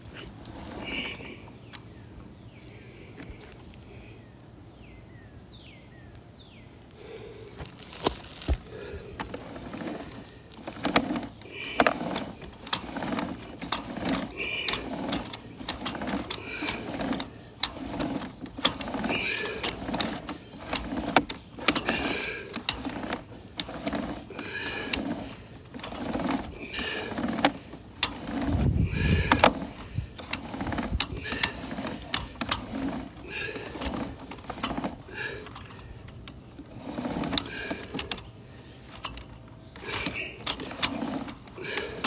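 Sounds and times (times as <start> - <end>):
cable scraping inside pipe: 0.0 - 1.7, 7.6 - 42.0
cable clicking in pipe: 7.6 - 42.0.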